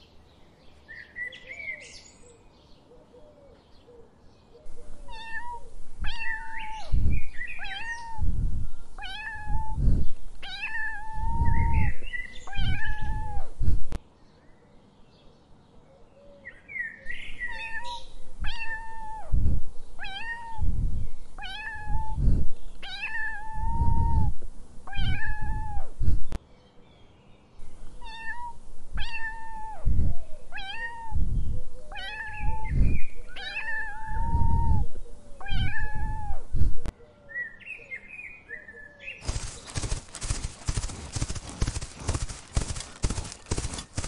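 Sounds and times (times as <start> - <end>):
cat meowing: 5.0 - 7.0, 7.6 - 8.4, 9.0 - 9.8, 10.4 - 13.5, 17.5 - 19.4, 20.0 - 20.8, 21.4 - 22.2, 22.8 - 24.3, 24.9 - 25.9, 28.0 - 29.9, 30.5 - 31.3, 31.9 - 36.4.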